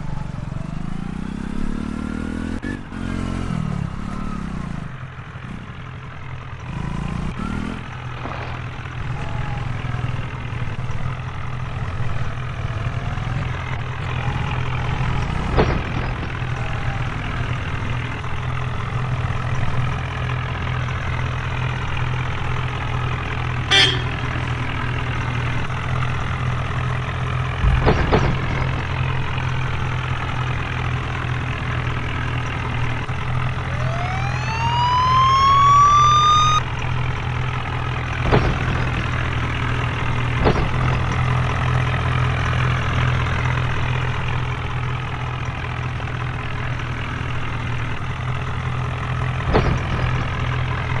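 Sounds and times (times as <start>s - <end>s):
tractor diesel engine idling: 7.9s - 34.7s, 36.6s - 51.0s
sharp knocks: 27.6s - 30.3s, 38.2s - 41.8s
siren-like wail rising in pitch: 33.6s - 36.7s.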